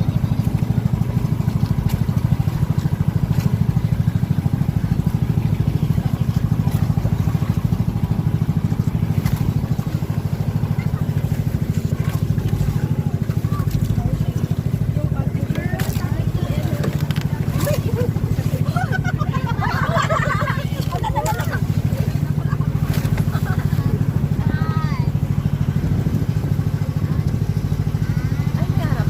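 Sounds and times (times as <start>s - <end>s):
small engine running: 0.0s - 29.0s.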